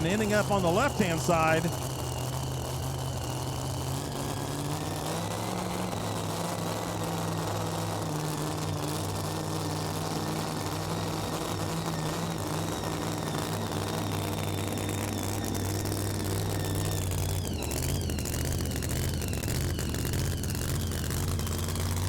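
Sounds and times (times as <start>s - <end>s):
high whine: 0.0s - 3.5s, 9.8s - 22.0s
truck engine running hard: 0.0s - 22.0s.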